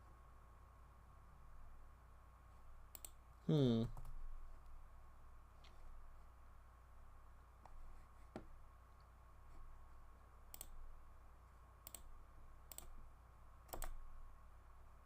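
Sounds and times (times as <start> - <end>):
faint electrical hum: 0.0 - 15.0
sharp computer clicks: 2.9 - 3.2, 10.5 - 10.8, 11.8 - 12.1, 12.7 - 12.9, 13.7 - 14.0.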